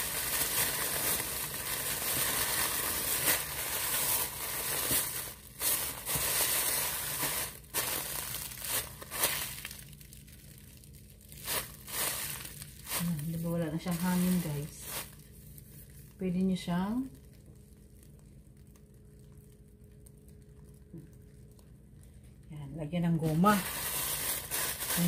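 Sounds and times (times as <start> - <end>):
plastic bag crinkling: 0.0 - 22.5, 23.1 - 25.0.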